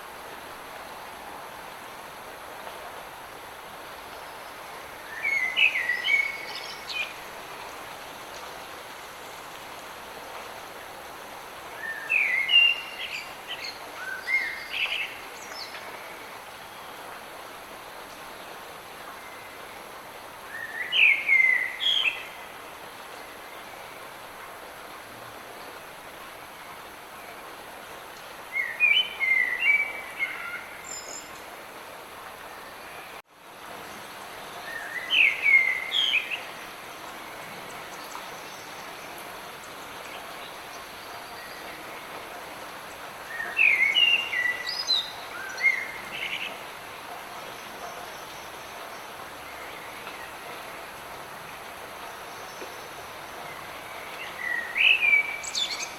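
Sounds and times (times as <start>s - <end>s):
light rain hissing: 0.0s - 55.9s
songbird singing: 3.8s - 8.4s, 11.6s - 17.2s, 18.0s - 24.1s, 28.2s - 33.2s, 33.8s - 55.9s.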